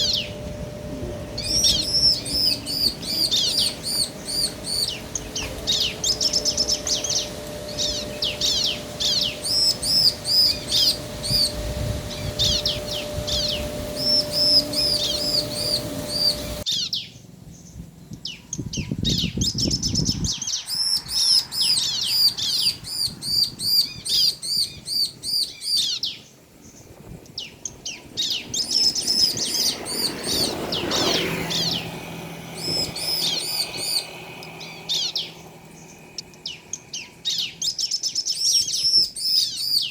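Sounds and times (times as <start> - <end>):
steady low hum: 0.0 - 20.3
birds chirping: 0.0 - 39.9.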